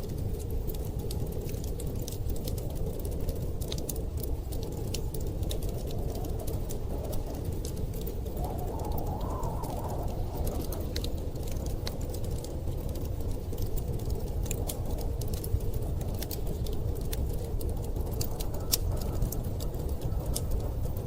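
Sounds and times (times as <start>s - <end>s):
wood fire crackling and popping: 0.0s - 21.0s
storm wind rushing: 5.4s - 17.8s.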